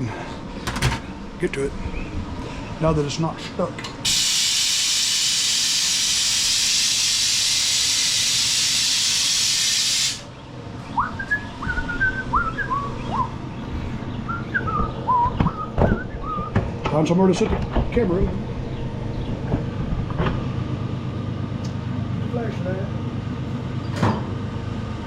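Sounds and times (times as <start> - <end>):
air releasing hiss: 4.0 - 10.3.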